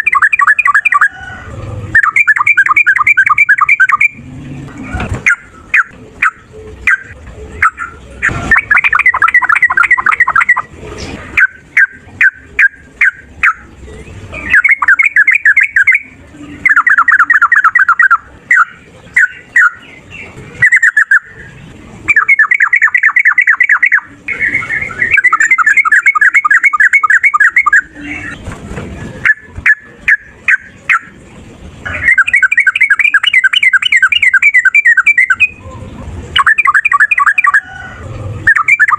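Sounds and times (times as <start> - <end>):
bird rattling song: 0.0 - 1.1, 1.9 - 4.2, 5.0 - 28.6, 31.9 - 35.6
bird chirps: 0.0 - 1.2, 1.9 - 4.4, 5.2 - 10.7, 11.4 - 28.5, 29.2 - 31.2, 31.8 - 37.8, 38.4 - 38.9.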